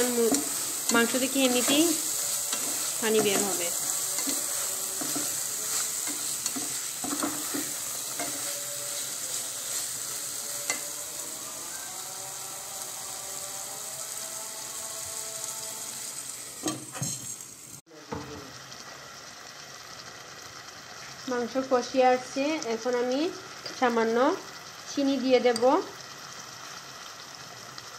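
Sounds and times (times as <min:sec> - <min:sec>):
stirring strokes: 0:00.0 - 0:10.8
chicken sizzling in a pan: 0:00.0 - 0:27.9.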